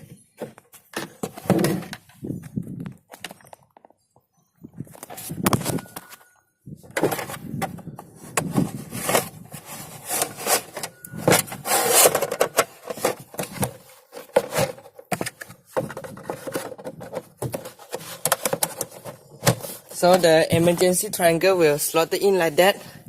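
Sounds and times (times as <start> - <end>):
plastic scraping: 0.0 - 3.6, 6.8 - 21.0.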